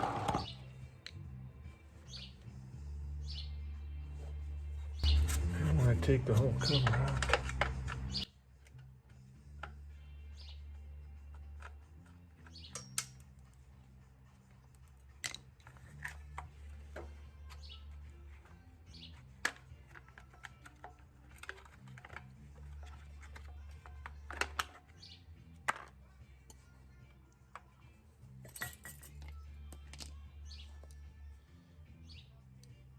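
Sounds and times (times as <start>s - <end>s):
birds chirping: 0.0s - 8.4s, 9.9s - 13.0s, 16.2s - 20.6s, 22.4s - 25.5s
hand tools clinking on metal: 5.2s - 8.2s, 11.2s - 13.3s, 28.4s - 30.2s.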